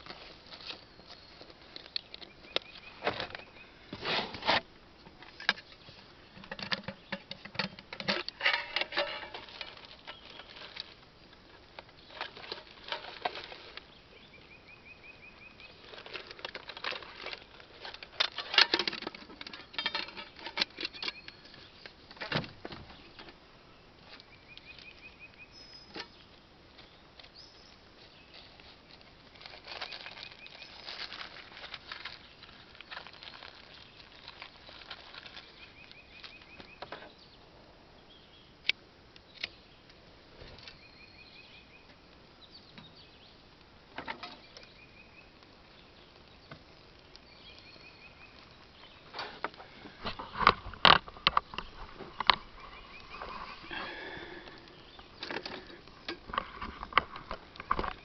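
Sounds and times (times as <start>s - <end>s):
handling rustling and clicking: 0.0s - 13.9s, 15.8s - 23.4s.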